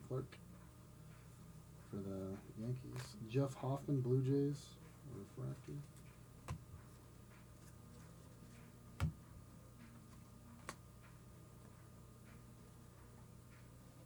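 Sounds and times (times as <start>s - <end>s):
steady low hum: 0.0s - 14.0s
cards tapping and clicking: 5.6s - 12.4s.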